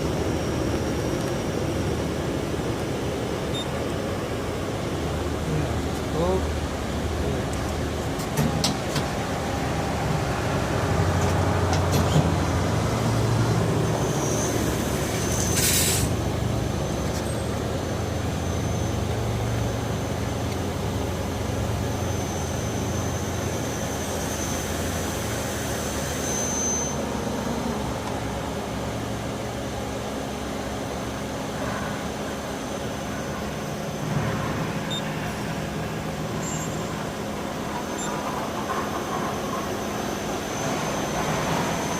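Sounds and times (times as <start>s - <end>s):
short hiss: 15.6s - 16.1s
thin high whine: 22.0s - 27.9s.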